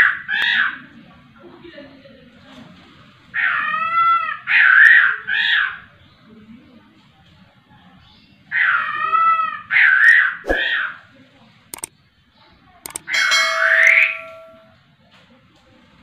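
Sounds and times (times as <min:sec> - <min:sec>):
bird calling loudly: 0:13.1 - 0:14.5.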